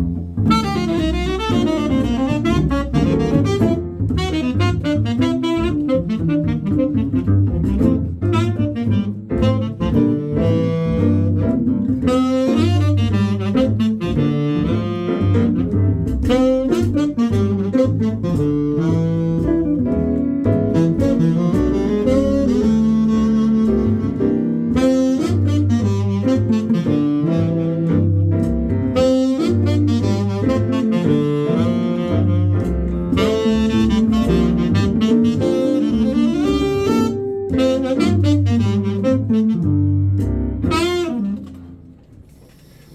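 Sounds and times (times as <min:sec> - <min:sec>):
double bass: 0:00.0 - 0:42.9
piano: 0:00.0 - 0:42.9
saxophone lead: 0:00.4 - 0:42.7
guitar: 0:23.4 - 0:42.3.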